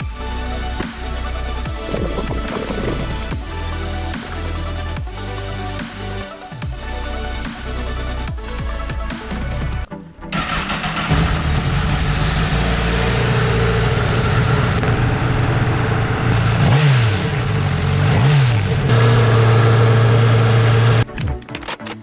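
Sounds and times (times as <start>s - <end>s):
motorcycle engine idling and revving: 8.3s - 21.1s.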